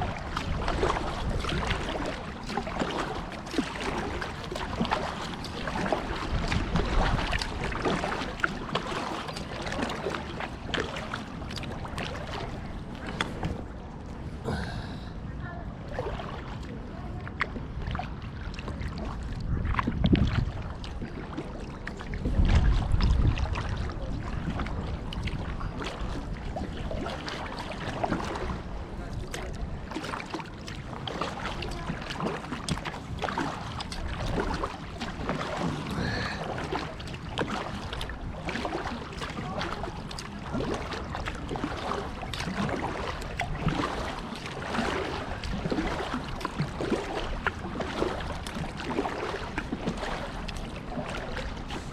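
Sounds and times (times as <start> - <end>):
wind buffeting microphone: 0.0 - 8.8, 16.8 - 27.2
water splashing around kayak: 0.0 - 51.9.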